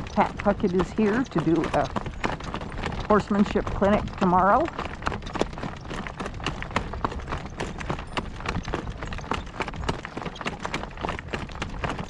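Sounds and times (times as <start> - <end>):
horse hooves clip-clopping: 0.0 - 12.0.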